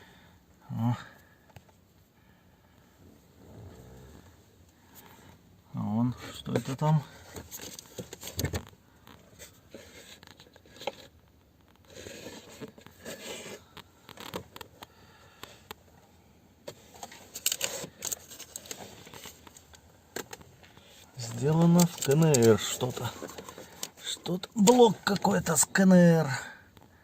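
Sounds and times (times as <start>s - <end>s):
hands handling parts: 6.4s - 15.8s, 16.6s - 25.8s.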